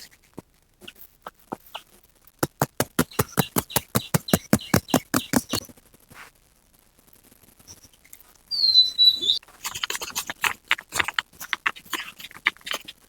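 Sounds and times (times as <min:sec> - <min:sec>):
hands slapping on back: 0:02.4 - 0:05.6.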